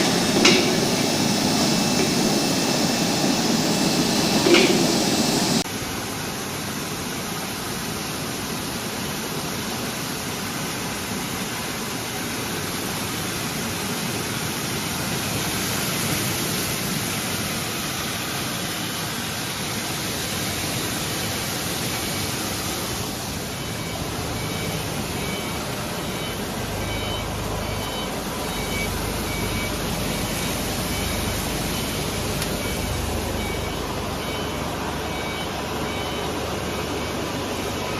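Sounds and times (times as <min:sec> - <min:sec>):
low hum: 0:00.0 - 0:05.6
faint short beeps: 0:23.6 - 0:37.9.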